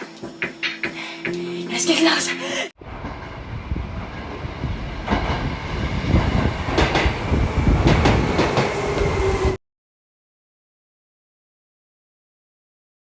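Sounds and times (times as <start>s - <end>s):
train rumbling on rails: 2.8s - 9.6s
wheels clicking on rails: 5.0s - 9.5s.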